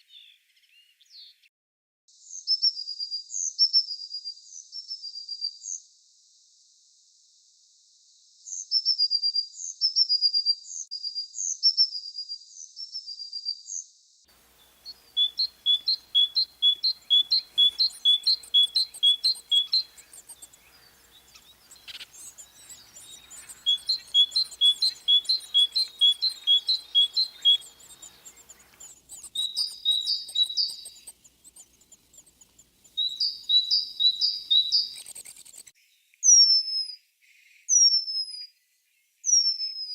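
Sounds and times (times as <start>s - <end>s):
songbird singing high notes: 14.4s - 35.7s.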